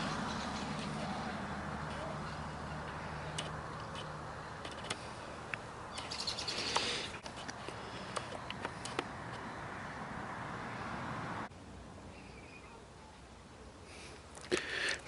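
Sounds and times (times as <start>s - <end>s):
birds chirping: 0.0s - 11.0s, 12.1s - 13.0s.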